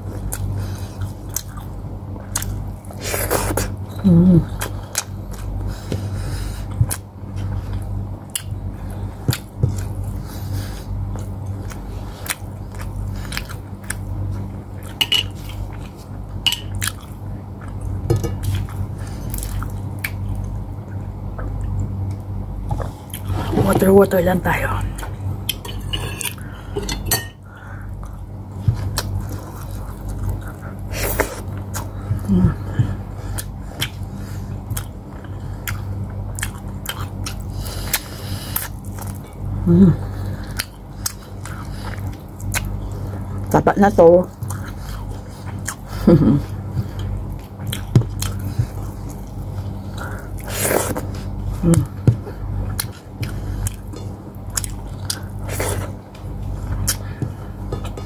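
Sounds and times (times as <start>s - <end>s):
low hum: 0.0s - 58.0s
chewing and mouth smacks: 1.3s - 1.7s, 34.7s - 39.3s, 40.4s - 42.8s, 44.3s - 45.9s, 46.8s - 52.0s, 52.6s - 58.0s.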